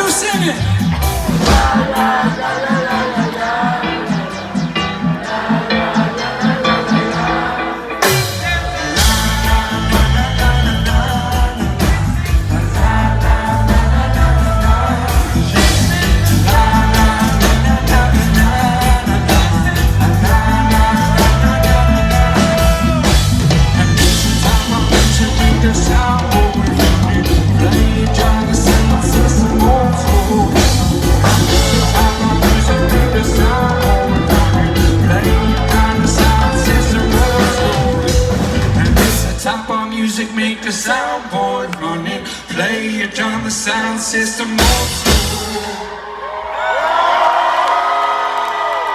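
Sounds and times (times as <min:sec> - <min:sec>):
drums: 0:00.0 - 0:39.9, 0:43.4 - 0:48.9
person singing: 0:00.0 - 0:46.0
reggae band playing: 0:00.0 - 0:46.5
heavy bass line: 0:08.4 - 0:39.4.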